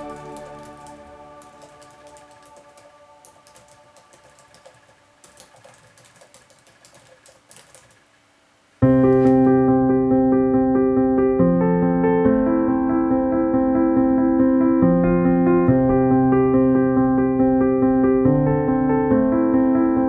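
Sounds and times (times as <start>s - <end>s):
electric piano music: 0.0s - 6.2s, 8.8s - 20.0s
typing on computer keyboard: 0.0s - 8.1s.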